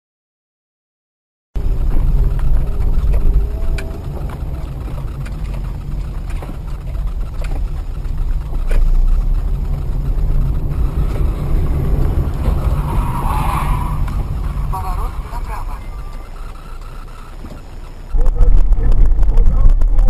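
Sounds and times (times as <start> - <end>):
car driving rumble: 1.6 - 20.0
faint ticks: 1.7 - 12.8.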